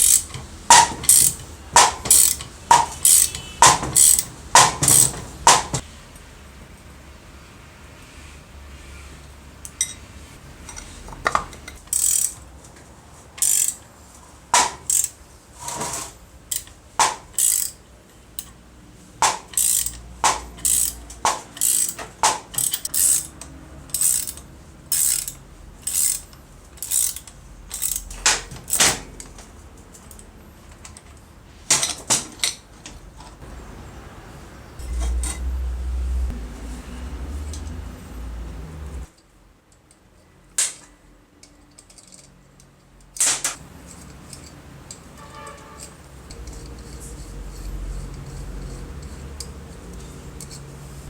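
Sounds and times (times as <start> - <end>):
hand tools clicking on metal: 0.0 - 5.8, 10.7 - 12.4, 13.4 - 13.8, 14.6 - 15.8, 16.5 - 17.8, 19.2 - 29.4, 41.4 - 50.8.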